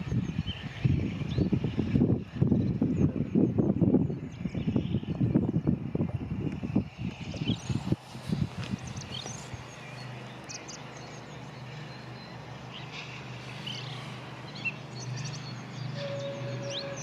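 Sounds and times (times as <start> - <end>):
birds chirping: 7.2 - 17.0
steam locomotive whistle: 15.8 - 17.0.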